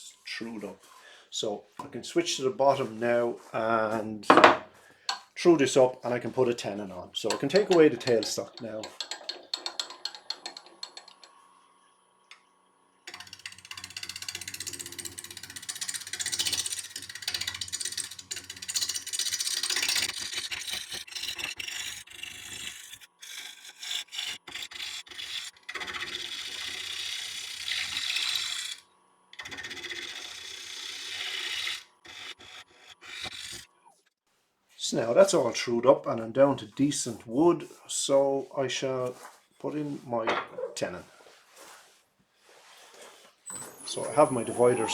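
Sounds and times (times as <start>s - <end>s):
turning tool scraping wood: 2.3s - 11.4s, 13.1s - 28.8s, 29.4s - 33.8s, 40.5s - 44.9s
wood lathe humming: 6.4s - 11.5s, 13.0s - 33.8s, 43.5s - 44.9s.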